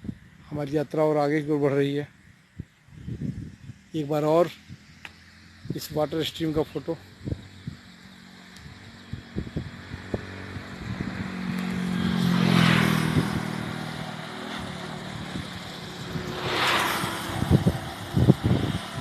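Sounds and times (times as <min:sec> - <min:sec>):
vehicles passing on road: 0:00.0 - 0:19.0
wind thumps on microphone: 0:09.1 - 0:13.9, 0:14.5 - 0:19.0.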